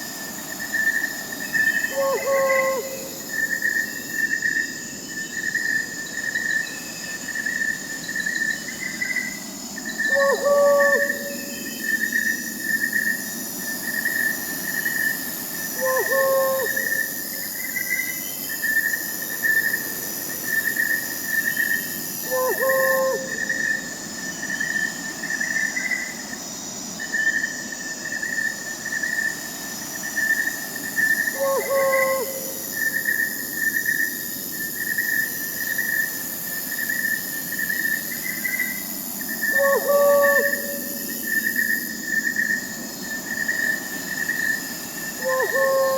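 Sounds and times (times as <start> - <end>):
crickets chirping: 0.0 - 45.9
high insect trill: 0.0 - 45.9
owl hooting: 1.8 - 3.2, 10.0 - 11.7, 15.8 - 17.1, 22.2 - 23.7, 31.0 - 32.9, 39.4 - 41.4, 45.2 - 45.9.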